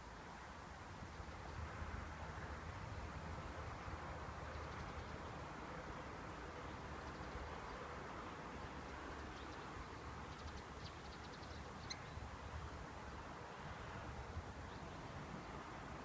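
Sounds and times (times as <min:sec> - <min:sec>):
outdoor background noise: 0:00.0 - 0:16.0
small bird calling: 0:09.4 - 0:12.2.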